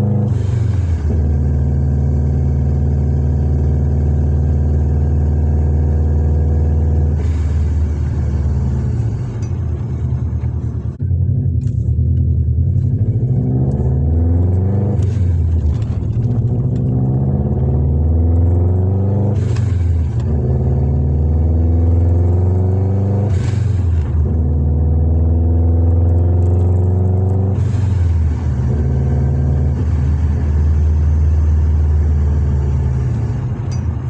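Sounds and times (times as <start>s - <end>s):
car engine accelerating: 0.0s - 34.0s.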